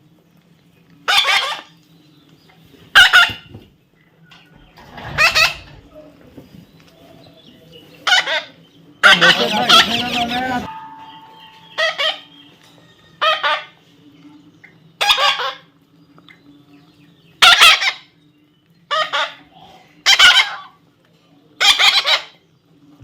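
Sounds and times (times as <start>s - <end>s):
parrot squawking: 5.0s - 5.9s, 8.0s - 10.7s, 11.7s - 12.3s, 13.2s - 13.8s, 15.0s - 15.6s, 17.4s - 18.1s, 18.9s - 19.4s, 20.0s - 20.8s, 21.6s - 22.4s.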